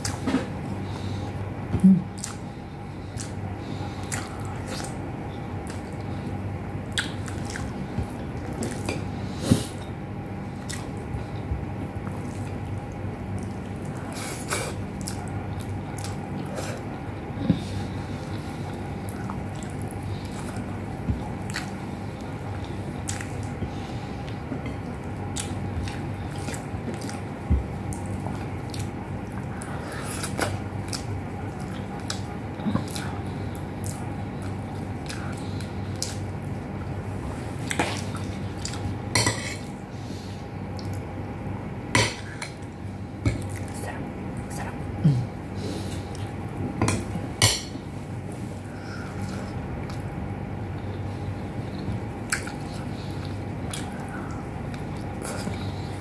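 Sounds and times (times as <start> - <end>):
person chewing: 0.0 - 5.0, 6.9 - 9.9, 10.6 - 36.6, 37.6 - 39.8, 48.3 - 56.0
wet mouth clicks and smacks: 52.3 - 52.6, 53.7 - 54.0.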